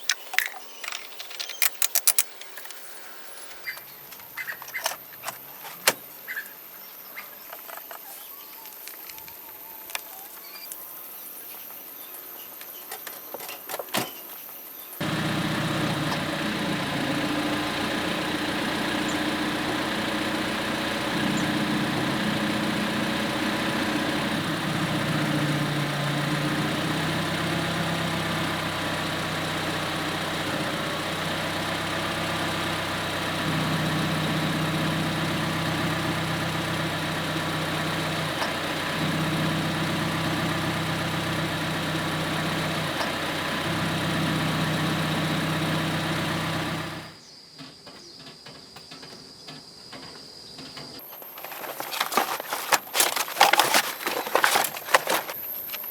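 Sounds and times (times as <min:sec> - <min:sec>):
car engine idling: 0:15.0 - 0:47.2, 0:51.0 - 0:55.9.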